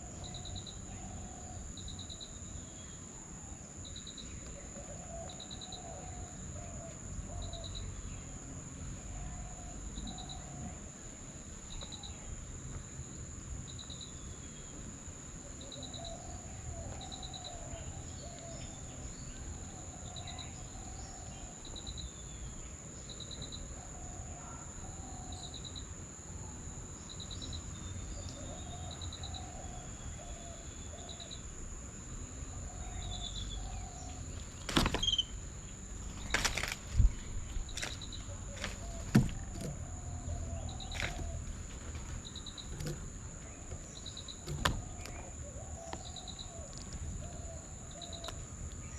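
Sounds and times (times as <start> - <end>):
cricket-like chirps: 0.0 - 48.9
high insect drone: 0.0 - 48.9
bird calls: 32.5 - 48.9.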